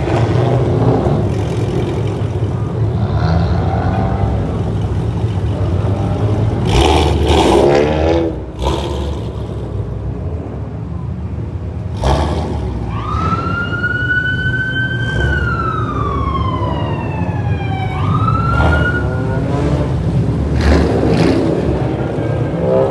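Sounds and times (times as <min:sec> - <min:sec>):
car engines rumbling: 0:00.0 - 0:22.9
police car siren wailing: 0:12.8 - 0:20.1.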